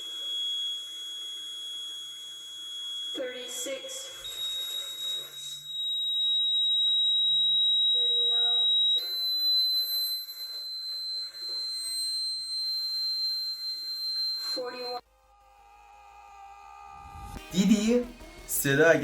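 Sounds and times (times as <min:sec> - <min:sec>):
high-pitched electronic test tone: 0:00.0 - 0:15.1.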